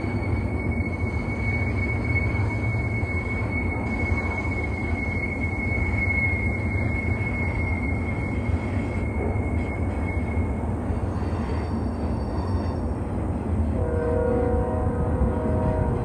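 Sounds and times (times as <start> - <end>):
high-pitched wheel squeal: 0.0 - 13.0
freight train wheels rumbling: 0.0 - 16.0.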